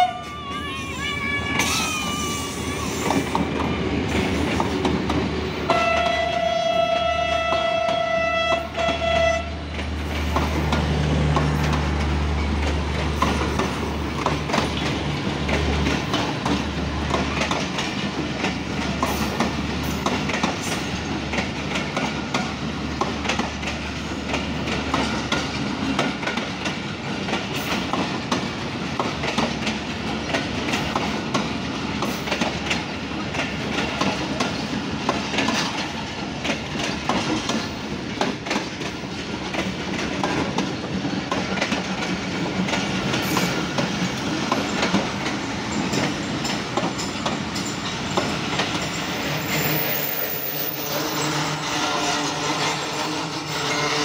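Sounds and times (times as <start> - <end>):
train horn blast: 0.0 - 0.3, 5.7 - 9.6, 50.8 - 54.0
diesel locomotive engine passing: 0.0 - 54.0
train wheels clicking over rail joints: 1.5 - 51.6.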